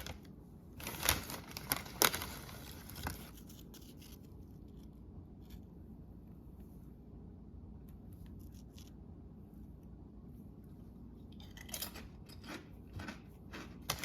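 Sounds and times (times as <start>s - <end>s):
tortilla chips crunched: 0.0s - 4.2s, 11.4s - 14.0s.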